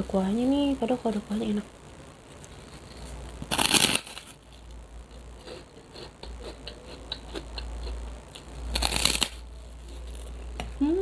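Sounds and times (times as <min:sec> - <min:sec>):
loud crinkle: 0:02.4 - 0:04.7, 0:08.4 - 0:10.4.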